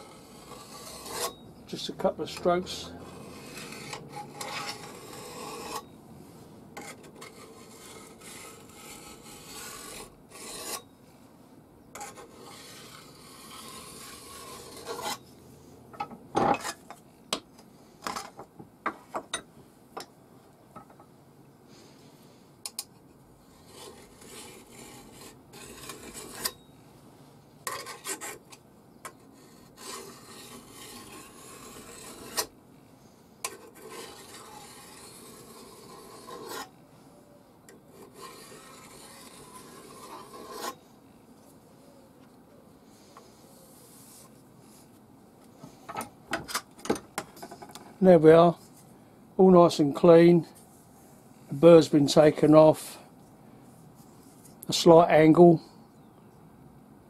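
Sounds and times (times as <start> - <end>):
file scraping steel: 0.0 - 5.9, 6.8 - 10.9, 12.0 - 15.3, 23.4 - 26.7, 27.6 - 32.6, 33.4 - 36.8, 37.7 - 40.8.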